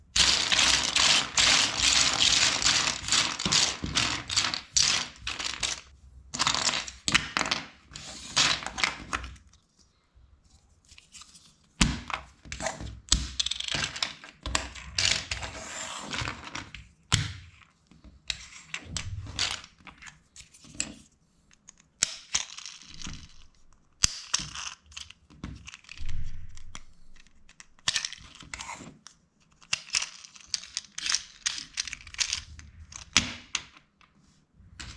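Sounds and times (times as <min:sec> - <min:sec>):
plastic bricks clicking together: 0:00.2 - 0:07.8, 0:24.0 - 0:28.6, 0:29.5 - 0:33.9
plastic pieces clattering: 0:00.2 - 0:09.4, 0:29.6 - 0:33.6.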